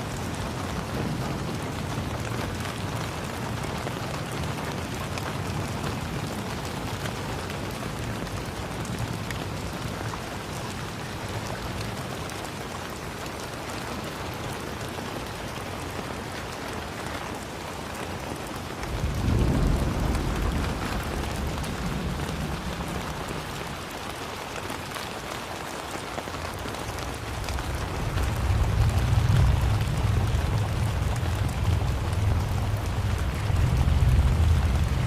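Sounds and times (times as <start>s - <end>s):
rain pattering: 0.0s - 35.0s
low rumble: 18.8s - 24.0s, 27.1s - 35.0s.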